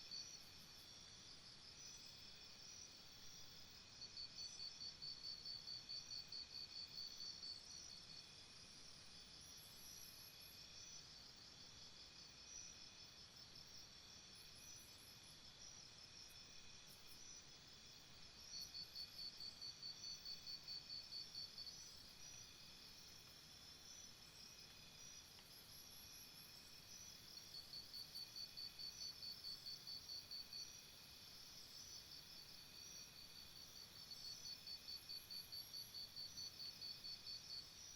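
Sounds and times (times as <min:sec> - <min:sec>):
loud pulsing insect trill: 0:13.6 - 0:37.9.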